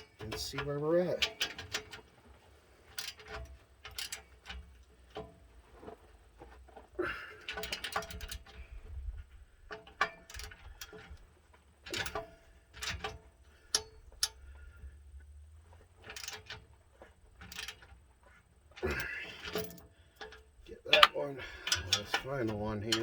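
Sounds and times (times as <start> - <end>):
metal clinks: 18.9 - 23.0.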